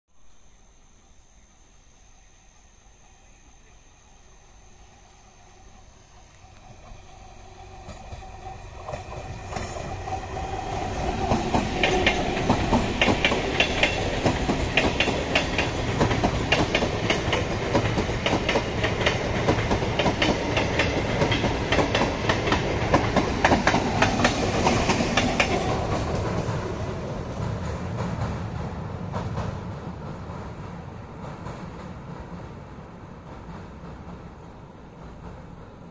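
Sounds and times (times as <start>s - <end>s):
train passing: 2.1s - 35.9s
wheels clacking over rail joints: 7.8s - 26.6s.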